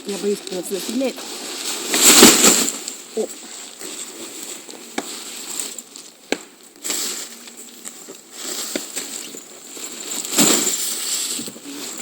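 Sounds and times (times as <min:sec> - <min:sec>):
tent fabric rustling: 0:00.0 - 0:06.1, 0:06.8 - 0:12.0
clicks and knocks of tent: 0:00.2 - 0:05.7, 0:08.4 - 0:12.0.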